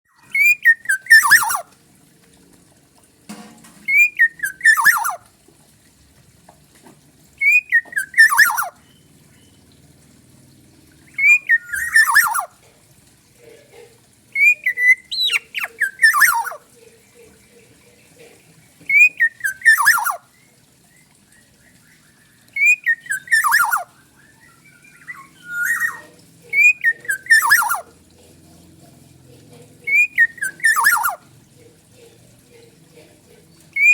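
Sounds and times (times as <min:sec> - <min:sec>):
bird singing fluting whistles: 0:00.4 - 0:01.6, 0:03.8 - 0:05.2, 0:07.4 - 0:09.6, 0:11.2 - 0:12.5, 0:14.4 - 0:16.6, 0:18.9 - 0:20.2, 0:21.9 - 0:26.0, 0:26.6 - 0:27.8, 0:29.9 - 0:31.2.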